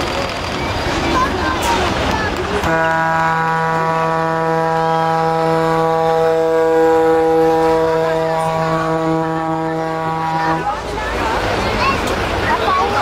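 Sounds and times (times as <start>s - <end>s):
truck air horn blast: 2.6s - 10.8s.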